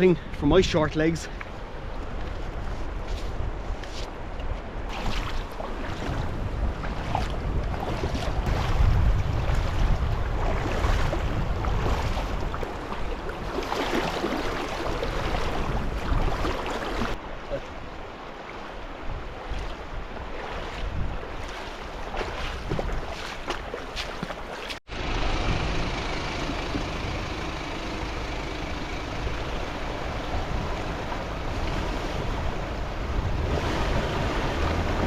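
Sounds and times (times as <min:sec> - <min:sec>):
wind buffeting microphone: 0:00.0 - 0:17.2, 0:18.9 - 0:23.8, 0:28.8 - 0:35.0
fast-flowing river rushing: 0:09.7 - 0:19.1, 0:26.2 - 0:35.0.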